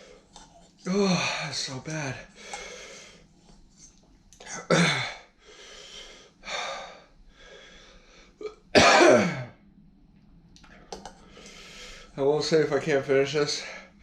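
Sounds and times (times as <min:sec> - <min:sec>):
man coughing: 0:04.5 - 0:05.2, 0:08.4 - 0:09.6.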